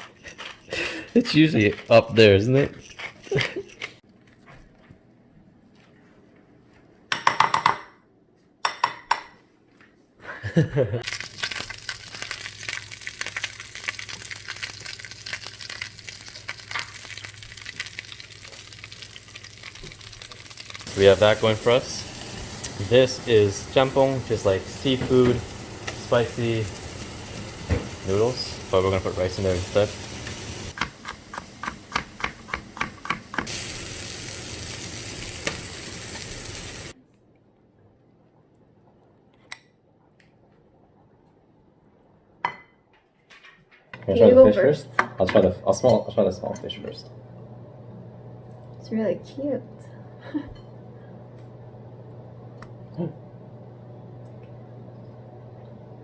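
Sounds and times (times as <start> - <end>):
food frying in hot oil: 11.0 - 37.0
steady low hum: 20.8 - 30.8, 46.2 - 56.0.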